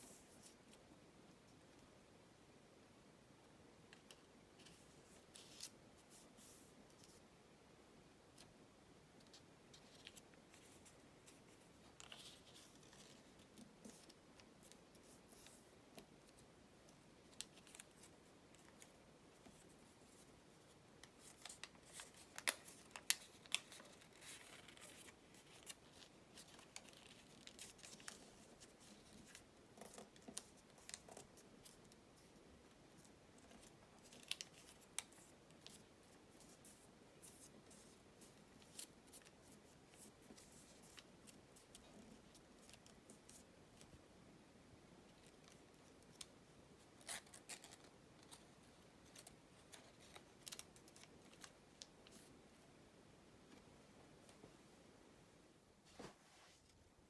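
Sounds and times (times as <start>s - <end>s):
paper clicks and crinkles: 9.2s - 44.0s, 46.9s - 52.3s.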